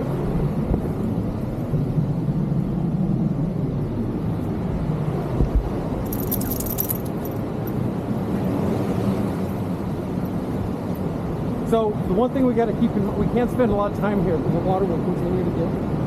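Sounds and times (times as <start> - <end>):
metallic jingle: 6.1 - 7.4.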